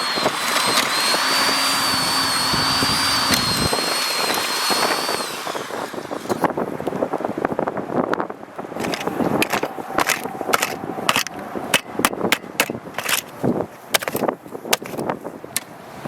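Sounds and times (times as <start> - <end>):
motor whining: 0.0 - 6.7
sharp knocks and scrapes: 8.8 - 15.2.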